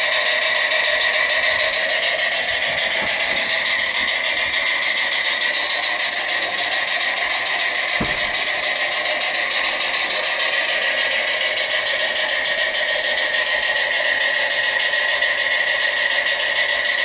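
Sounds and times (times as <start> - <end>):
model engine whirring: 0.0 - 17.0
short low knock: 8.0 - 8.5.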